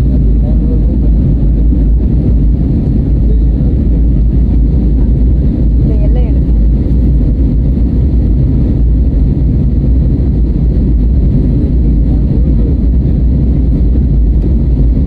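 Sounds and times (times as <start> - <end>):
jet engine rumble in cabin: 0.0 - 15.0.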